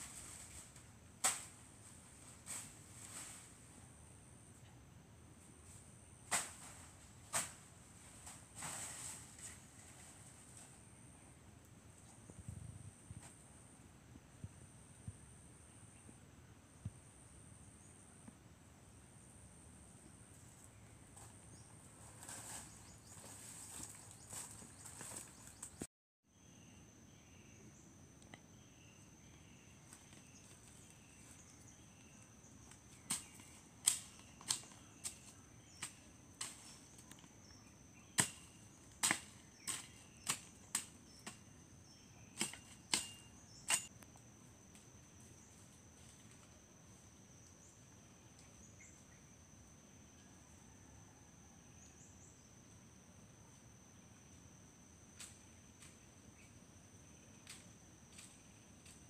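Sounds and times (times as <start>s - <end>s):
crickets trilling: 12.2s - 59.0s.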